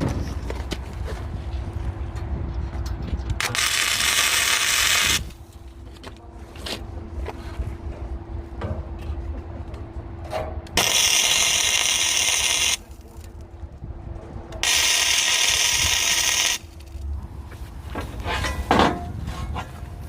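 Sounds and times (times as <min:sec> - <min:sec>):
power tool running: 0:10.8 - 0:12.8, 0:14.6 - 0:16.7.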